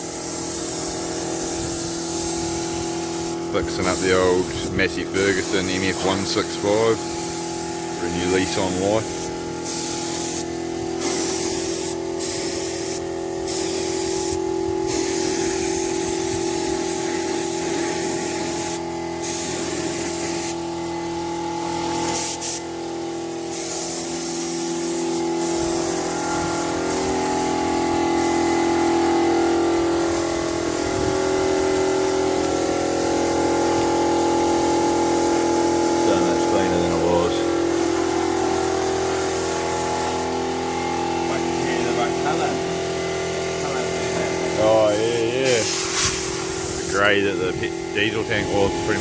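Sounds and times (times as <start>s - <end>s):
air spray gun hissing: 0.0s - 49.0s
steady machine hum: 0.0s - 49.0s.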